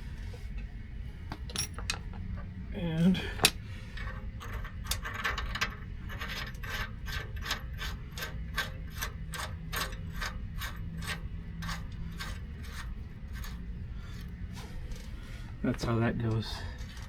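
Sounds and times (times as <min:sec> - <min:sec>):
hand tool rasping on steel: 0:06.1 - 0:15.0.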